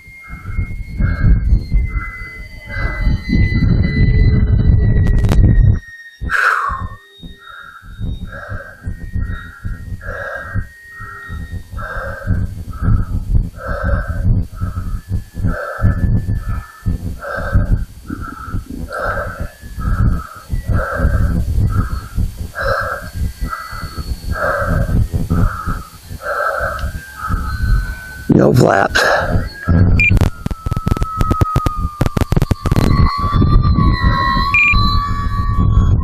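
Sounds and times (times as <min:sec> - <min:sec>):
wind on microphone: 0:00.0 - 0:36.0
crow cawing: 0:07.4 - 0:28.1.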